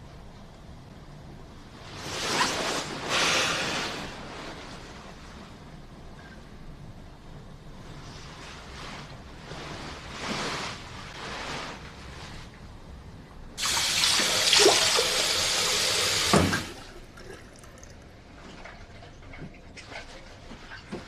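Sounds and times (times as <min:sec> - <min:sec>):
soft rustling: 0:01.7 - 0:06.5, 0:07.7 - 0:12.9
water running: 0:13.6 - 0:20.9.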